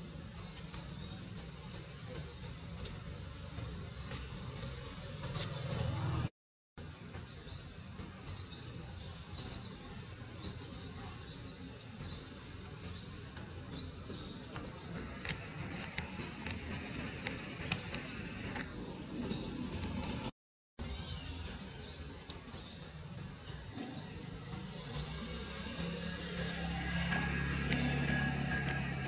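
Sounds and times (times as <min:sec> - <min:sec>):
small birds chirping: 0:00.0 - 0:06.2, 0:06.9 - 0:29.0
low outdoor rumble: 0:21.3 - 0:29.0.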